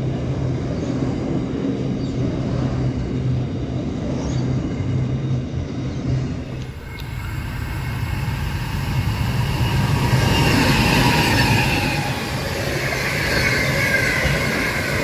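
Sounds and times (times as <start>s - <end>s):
train wheels rumbling on rail: 0.0s - 15.0s
high-pitched wheel squeal: 6.8s - 15.0s.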